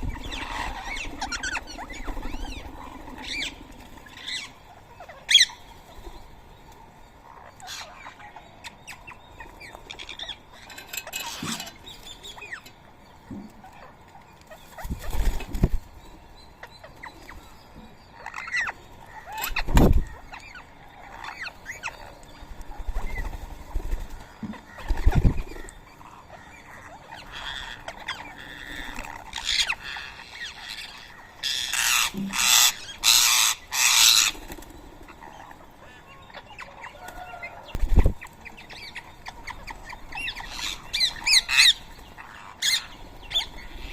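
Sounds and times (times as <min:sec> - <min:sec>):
parakeets chirping and squawking: 0:00.0 - 0:05.6, 0:07.2 - 0:12.7, 0:18.2 - 0:43.9.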